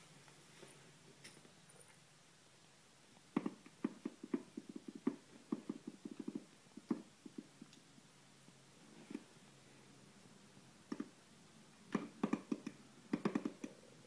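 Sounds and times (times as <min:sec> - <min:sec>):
soft taps and thumps: 0:03.4 - 0:07.8.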